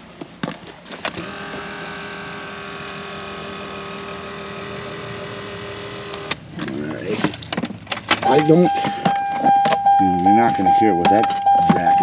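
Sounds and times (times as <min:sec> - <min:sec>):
small electric motor humming: 0:01.2 - 0:06.3.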